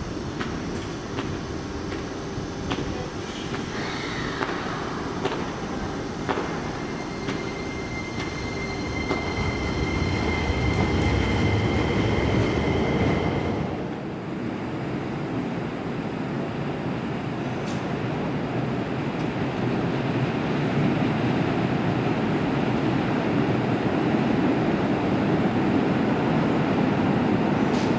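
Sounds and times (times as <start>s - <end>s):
electric train passing: 0.0s - 27.9s
steady high-pitched tone: 4.8s - 14.1s.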